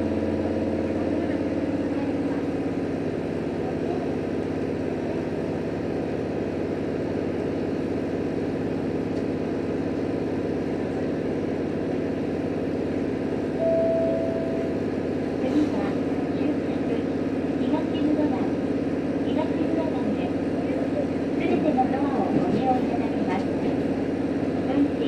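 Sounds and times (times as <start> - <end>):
railcar engine drone: 0.0 - 25.0
steady tone: 13.6 - 15.2.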